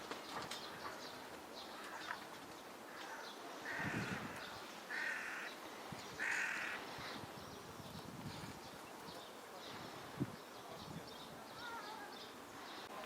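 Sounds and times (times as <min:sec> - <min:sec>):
small birds chirping: 0:00.1 - 0:13.0
crow cawing: 0:02.9 - 0:05.6, 0:06.2 - 0:06.8.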